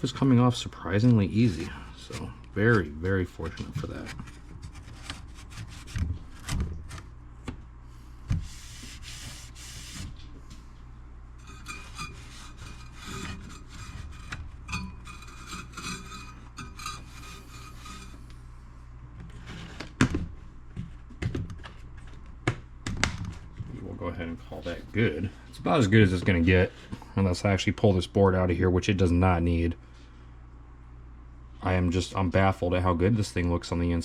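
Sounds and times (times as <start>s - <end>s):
scratchy rubbing on metal: 1.4s - 6.2s, 8.4s - 10.2s, 11.4s - 18.3s.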